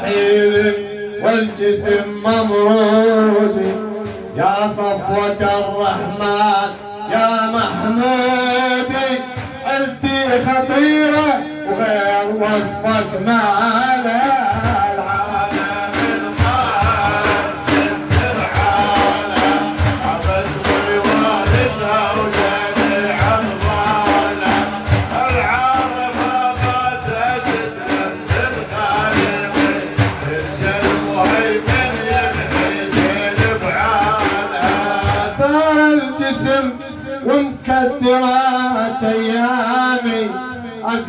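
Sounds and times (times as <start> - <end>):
frame drums beating: 0.0 - 41.0
person singing: 9.9 - 41.0.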